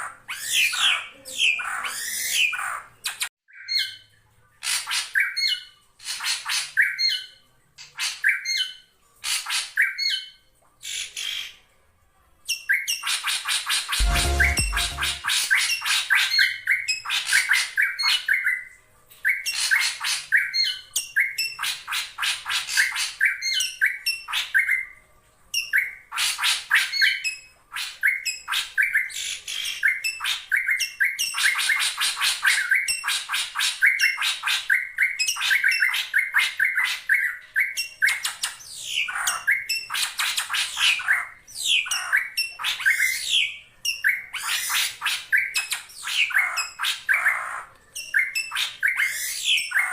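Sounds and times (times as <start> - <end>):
bird calling sweeping notes: 14.0 - 15.4.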